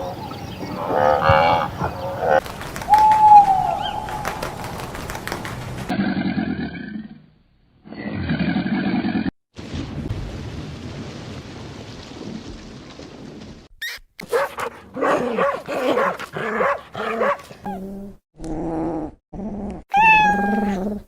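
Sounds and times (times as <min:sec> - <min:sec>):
dog barking: 0:14.2 - 0:17.5
dog whining: 0:19.9 - 0:21.0.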